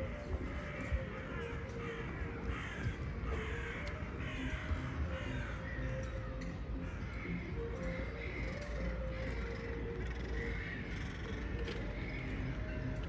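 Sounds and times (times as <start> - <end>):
bird giving harsh calls: 6.8 - 12.7.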